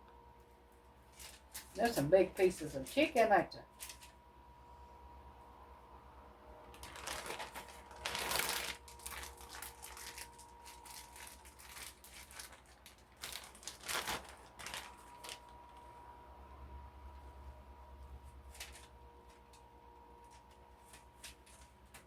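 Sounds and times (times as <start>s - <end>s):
food crinkling and rustling: 0.8s - 4.2s, 6.7s - 15.9s, 18.2s - 22.0s.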